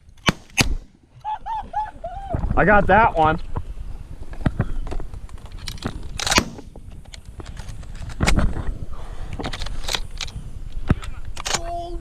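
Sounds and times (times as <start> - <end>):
sharp crack: 0.0 - 1.0, 5.4 - 7.2.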